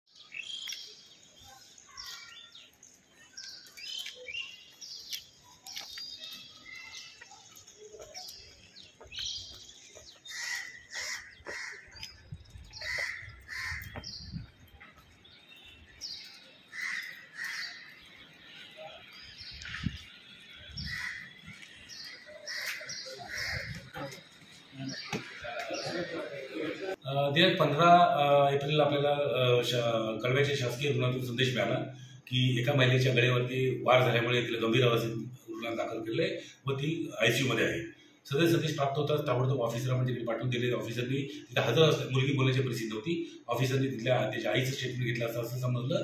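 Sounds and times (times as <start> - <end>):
birds chirping: 0.1 - 46.0.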